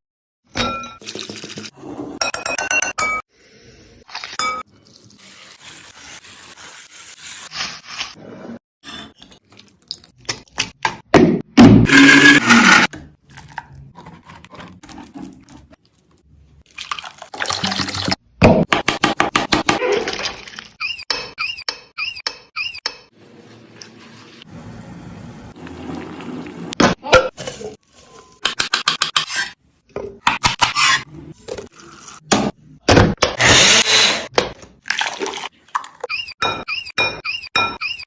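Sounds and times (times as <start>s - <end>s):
squeaks: 20.8s - 23.1s, 36.0s - 38.0s.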